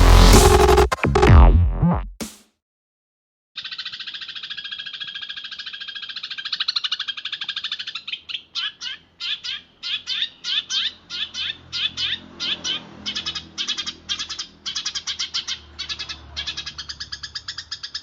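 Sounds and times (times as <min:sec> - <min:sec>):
sparrow chirping: 0:03.6 - 0:18.0.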